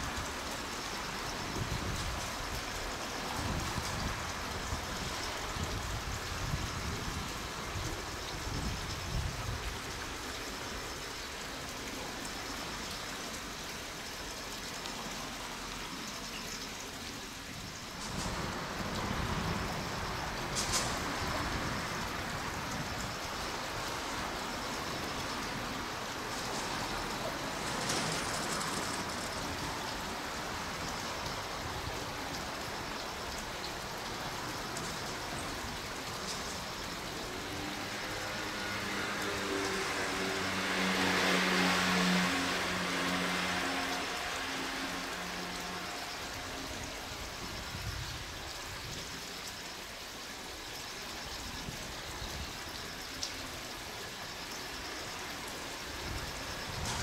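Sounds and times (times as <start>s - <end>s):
steady hiss: 0.0s - 57.0s
train passing: 25.6s - 31.0s.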